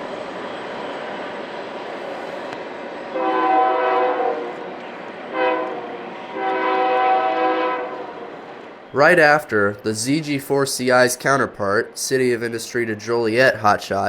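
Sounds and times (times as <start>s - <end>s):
passing train rumble: 0.0s - 14.0s
locomotive air horn blasts: 3.1s - 4.7s, 5.3s - 8.4s.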